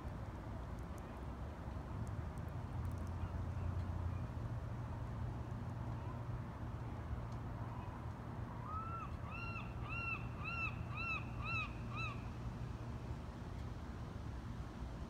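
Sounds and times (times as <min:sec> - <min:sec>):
bird calling clear notes: 0:08.6 - 0:12.3.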